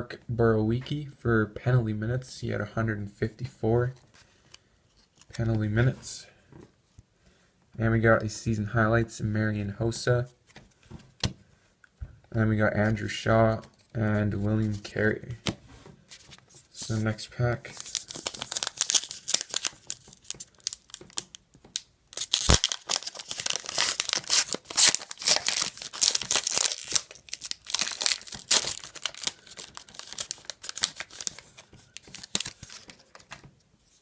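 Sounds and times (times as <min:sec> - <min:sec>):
plastic wrapper tearing and crinkling: 0:17.7 - 0:33.4.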